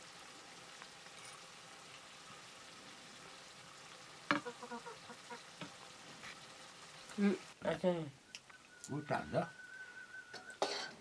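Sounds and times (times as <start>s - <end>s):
curry sizzling in a wok: 0.0s - 7.7s, 10.3s - 11.0s.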